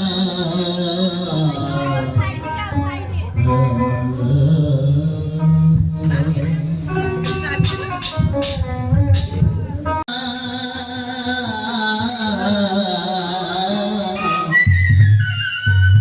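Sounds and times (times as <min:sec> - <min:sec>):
folk singing over instruments: 0:00.0 - 0:02.6, 0:10.1 - 0:14.8
low drum beat: 0:04.9 - 0:10.0.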